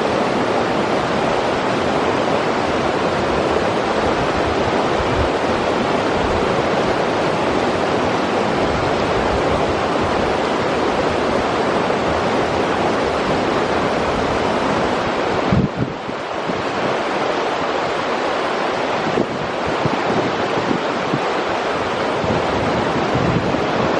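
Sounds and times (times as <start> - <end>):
river water rushing: 0.0 - 23.9.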